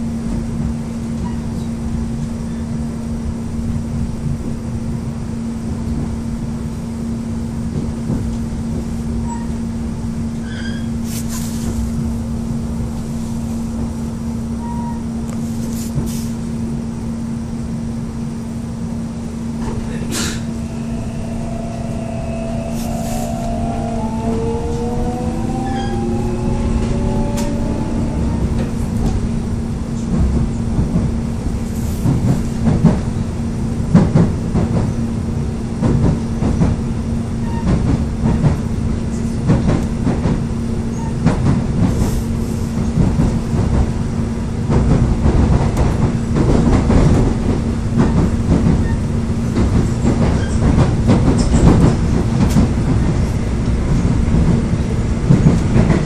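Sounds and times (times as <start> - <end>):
steady train hum: 0.0 - 56.0
rising whine: 20.4 - 30.0
train wheels clicking over rail joints: 21.6 - 33.2, 37.5 - 56.0.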